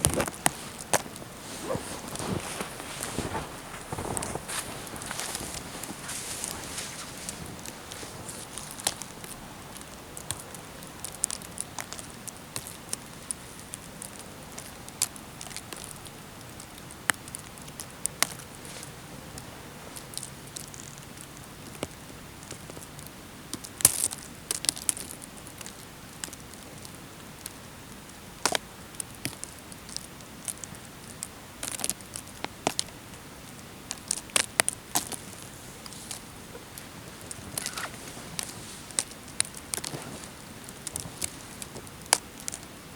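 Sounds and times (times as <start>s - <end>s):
twigs and leaves crackling underfoot: 0.0s - 14.7s, 33.9s - 42.9s
faint steady hiss: 0.0s - 42.9s.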